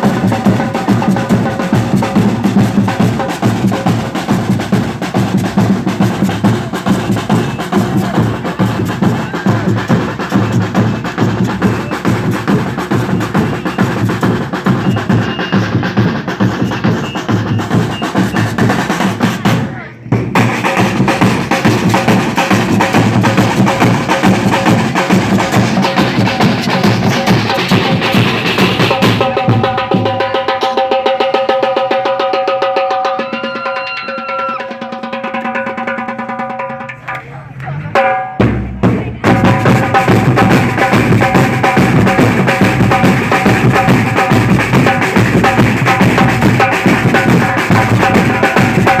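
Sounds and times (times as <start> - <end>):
deep drums: 0.0 - 49.0
samba percussion ensemble: 0.0 - 49.0
deep bass drums: 38.4 - 49.0.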